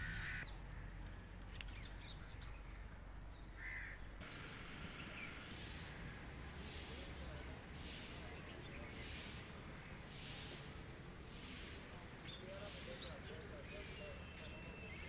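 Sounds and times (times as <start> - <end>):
bird cawing: 0.0 - 1.2, 2.2 - 4.1
low outdoor rumble: 0.0 - 15.0
pulsing hissing noise: 4.6 - 14.2.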